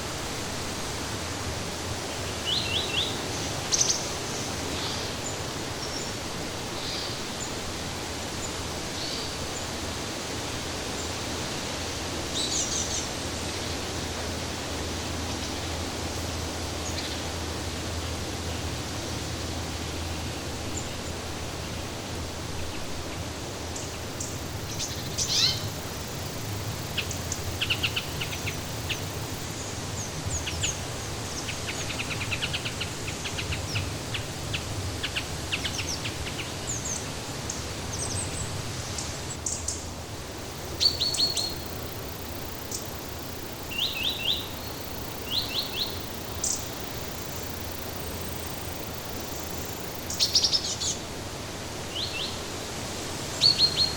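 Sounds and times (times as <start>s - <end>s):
songbirds chirping and trilling: 22.7s - 51.1s.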